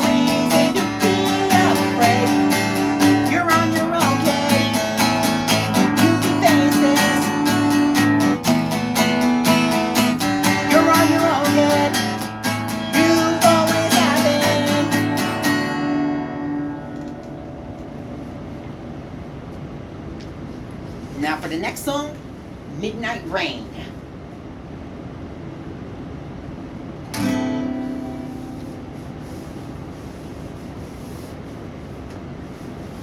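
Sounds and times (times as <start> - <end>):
person singing: 0.0 - 8.4, 10.2 - 15.7
acoustic guitar strumming: 0.0 - 19.2, 27.1 - 29.7.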